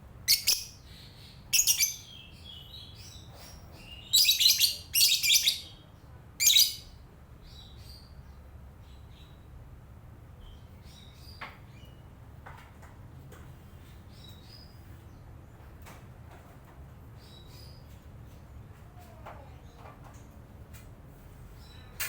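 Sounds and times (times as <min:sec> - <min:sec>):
bird chirping: 0:00.2 - 0:09.5.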